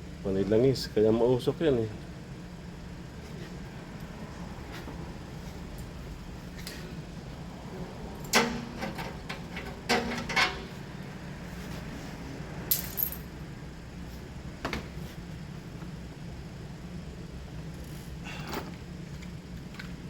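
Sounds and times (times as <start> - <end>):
metal tools clinking: 12.7 - 13.3.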